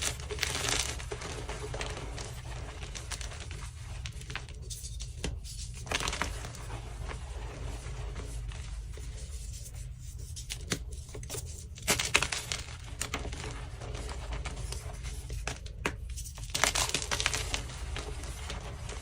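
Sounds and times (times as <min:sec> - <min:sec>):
chalk blocks being crushed: 0:00.0 - 0:06.6, 0:10.4 - 0:19.0.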